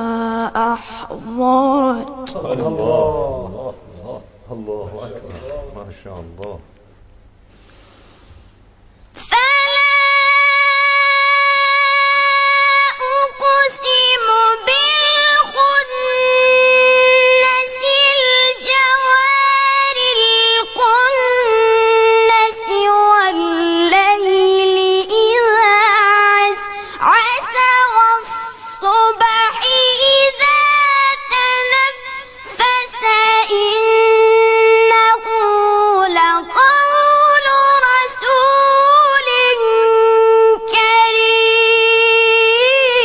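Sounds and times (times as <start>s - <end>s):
high voice chanting quran recitation: 0.0s - 6.7s, 9.2s - 43.0s.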